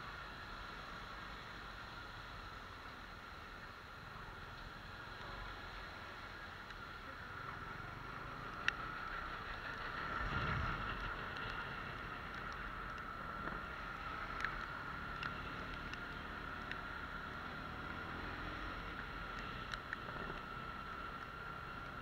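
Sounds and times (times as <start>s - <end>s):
motorcycle engine tyre and wind noise: 0.0s - 22.0s
sharp ticks: 8.4s - 17.2s.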